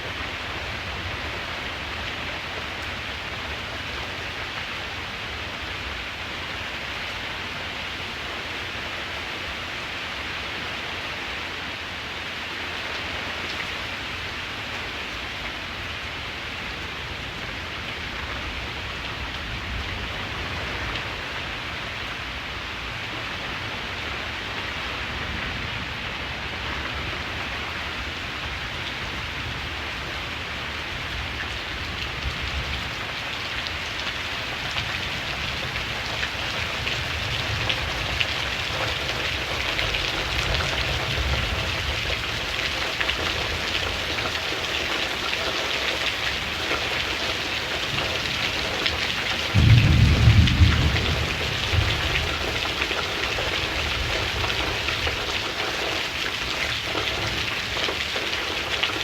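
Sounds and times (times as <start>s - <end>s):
steady rain falling: 0.0s - 59.0s
thunder rumbling: 48.9s - 55.2s.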